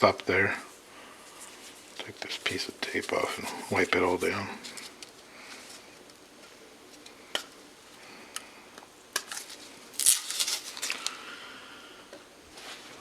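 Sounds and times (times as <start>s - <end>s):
tape being peeled off: 9.3s - 11.2s.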